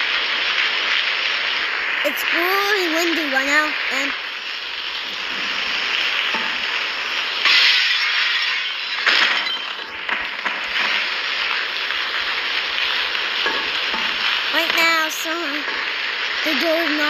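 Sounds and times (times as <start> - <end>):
wind and rain storm: 0.0 - 17.0
crashing bursts: 5.0 - 16.4.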